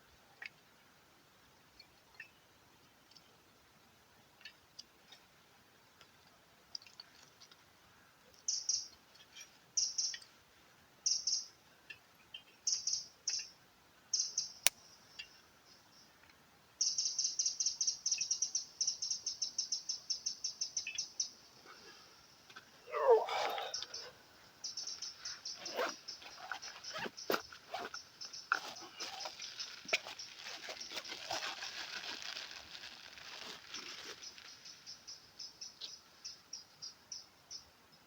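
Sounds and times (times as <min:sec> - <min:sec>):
songbird chirping: 0:08.3 - 0:10.4, 0:11.0 - 0:38.0.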